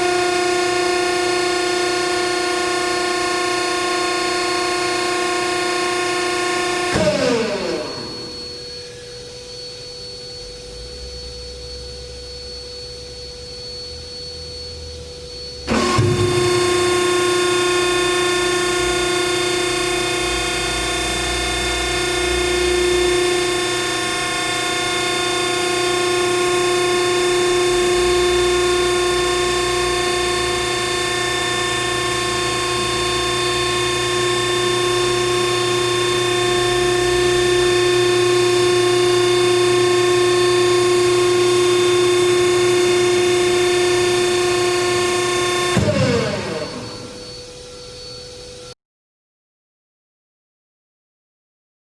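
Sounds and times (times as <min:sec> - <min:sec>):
electric motor and pump whine: 0:00.0 - 0:48.8.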